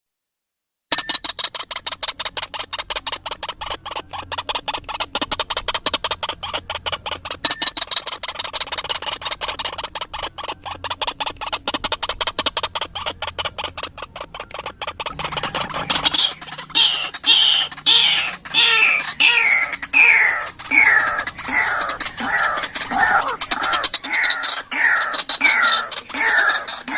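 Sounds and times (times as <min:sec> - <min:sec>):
bird call harsh repeated notes: 0:07.3 - 0:26.9.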